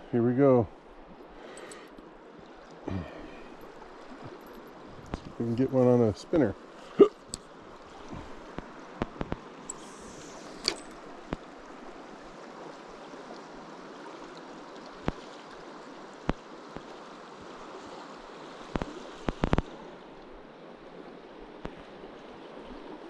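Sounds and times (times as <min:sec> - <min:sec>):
river flowing: 0:00.0 - 0:23.0.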